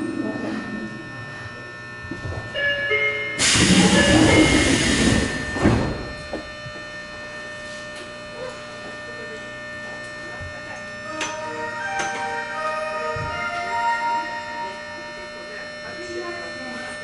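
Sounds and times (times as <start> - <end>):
door chime tones: 0.2 - 6.5, 11.1 - 15.6
air hissing: 3.4 - 6.0
sliding doors thumping shut: 3.4 - 6.2.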